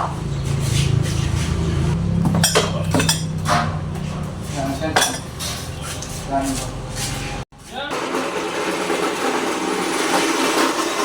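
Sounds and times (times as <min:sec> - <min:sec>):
metal clinking and clanking: 0:02.2 - 0:06.1.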